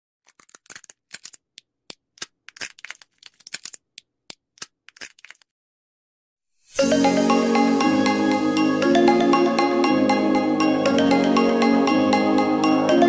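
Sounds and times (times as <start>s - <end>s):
bird pecking at seeds: 0.3s - 5.5s.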